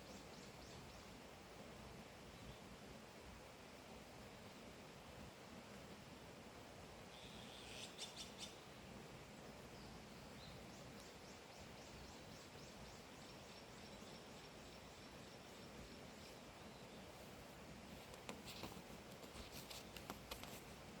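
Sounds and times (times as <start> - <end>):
soft steady hiss: 0.0 - 21.0
wild bird calls: 7.1 - 8.8.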